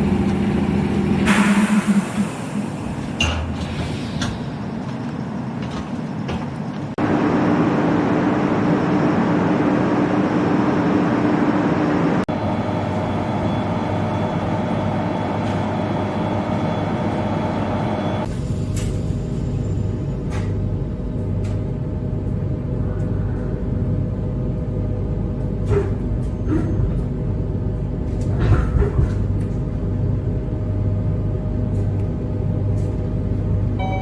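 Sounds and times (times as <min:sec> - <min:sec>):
vehicle running rumble: 0:00.0 - 0:13.4.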